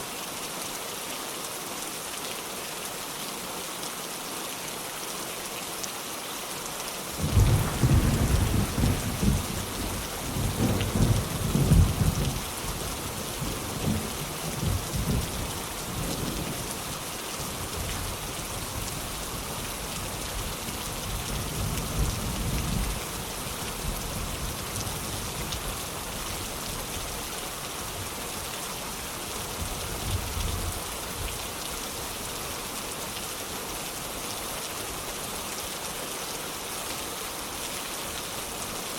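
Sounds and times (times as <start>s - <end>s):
heavy rain: 0.0s - 38.9s
thunder rumbling: 7.2s - 16.8s.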